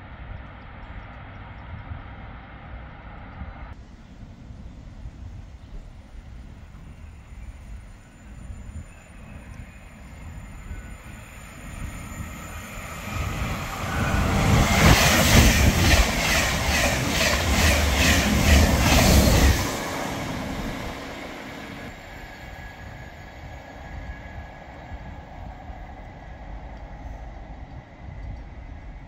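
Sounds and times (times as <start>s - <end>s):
high-speed train passing: 1.7s - 29.0s
train wheels beating: 4.8s - 29.0s.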